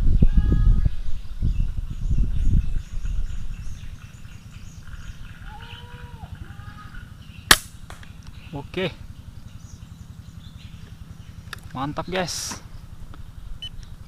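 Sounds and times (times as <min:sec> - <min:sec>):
dove cooing: 0:04.1 - 0:07.2
air rifle firing: 0:07.5 - 0:08.1.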